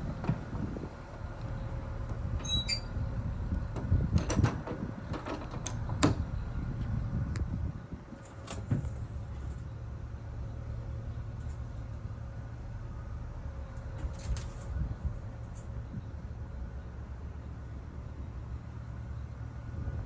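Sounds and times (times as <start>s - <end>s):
low vehicle rumble: 0.0s - 20.0s
short squeak: 2.4s - 3.0s.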